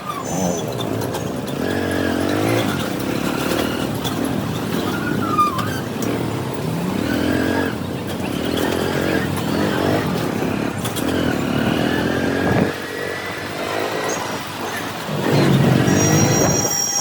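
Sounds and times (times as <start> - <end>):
brief high squeal: 0.0 - 0.8, 15.8 - 17.0
motorcycle engine revving: 0.0 - 17.0
road and traffic noise: 0.0 - 17.0.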